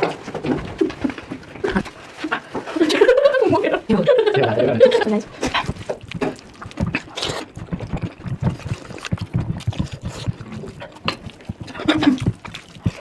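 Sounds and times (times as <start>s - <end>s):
wet chewing and lip-smacking: 5.2s - 13.0s.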